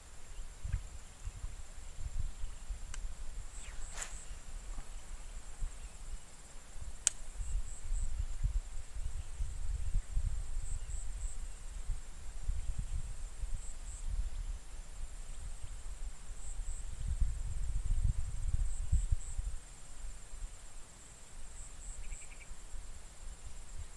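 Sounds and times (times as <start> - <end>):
insect chirps: 0.0 - 23.9
high-pitched insect drone: 0.2 - 14.5.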